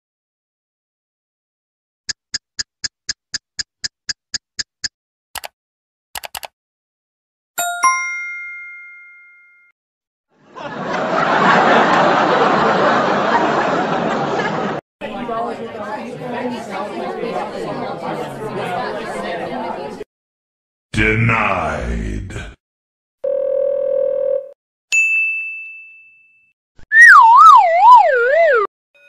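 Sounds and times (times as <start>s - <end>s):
computer mouse clicks: 5.4s - 5.6s, 6.2s - 6.5s
crowd laughing: 10.4s - 20.0s.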